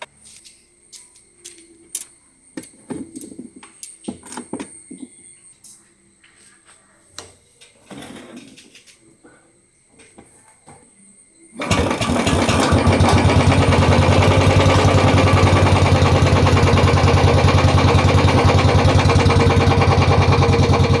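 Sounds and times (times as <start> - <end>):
motorcycle engine starting and idling: 11.6 - 21.0.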